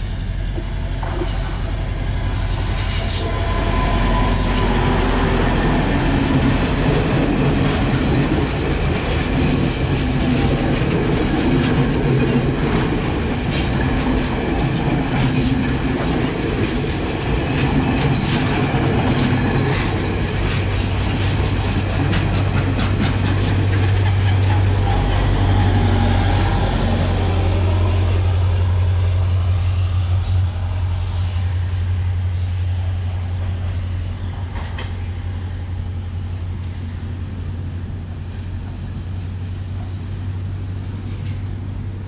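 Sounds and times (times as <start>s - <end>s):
train engine drone: 0.0s - 42.0s
wheels clicking over rail joints: 5.6s - 25.6s.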